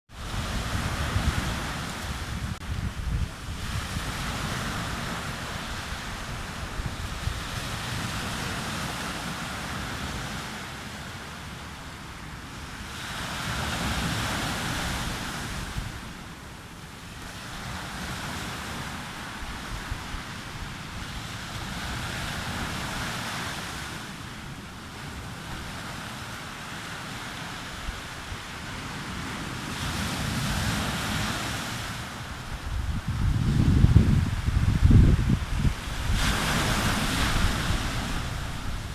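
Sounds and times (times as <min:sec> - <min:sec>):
wind buffeting microphone: 0:00.1 - 0:08.9, 0:32.2 - 0:38.9
sea waves breaking on beach: 0:00.1 - 0:38.9.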